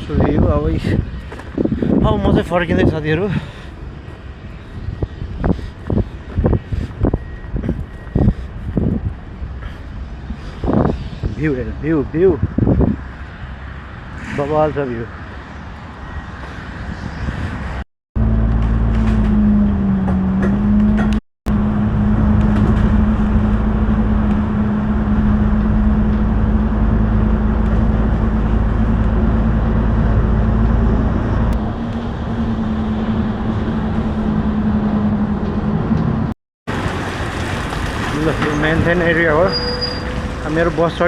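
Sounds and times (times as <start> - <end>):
large engine humming: 18.2 - 36.3.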